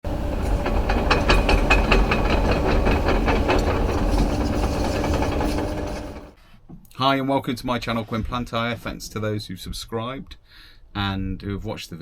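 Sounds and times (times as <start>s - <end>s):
diesel engine rumbling: 0.0s - 6.4s
metal clanks and knocks: 0.1s - 6.4s.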